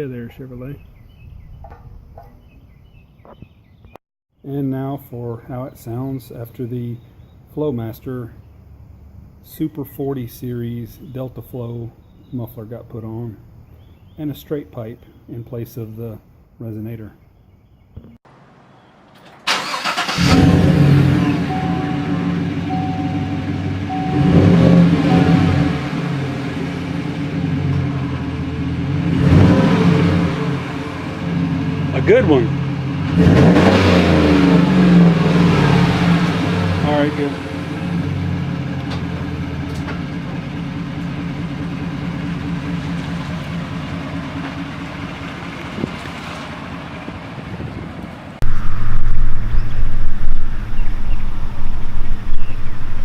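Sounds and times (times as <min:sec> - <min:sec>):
car engine idling and revving: 0:18.3 - 0:53.0.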